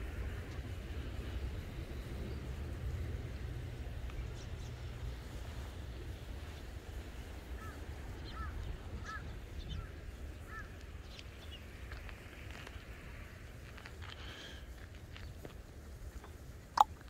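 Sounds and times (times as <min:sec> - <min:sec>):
steady low rumble: 0:00.0 - 0:17.0
bird calling: 0:07.6 - 0:11.6.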